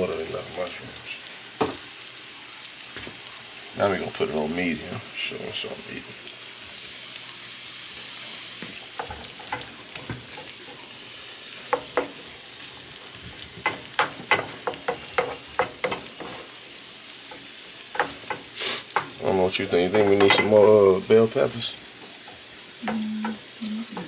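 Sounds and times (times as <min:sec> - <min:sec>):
vegetables sizzling in a frying pan: 0:00.0 - 0:24.0
wooden spoon scraping a pan: 0:13.1 - 0:16.6.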